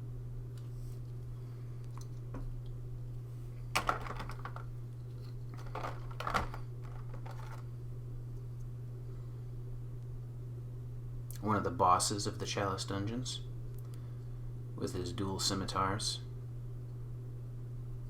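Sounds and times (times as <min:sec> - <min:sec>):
steady low hum: 0:00.0 - 0:18.0
plastic miniatures clicking and rattling: 0:05.6 - 0:07.6.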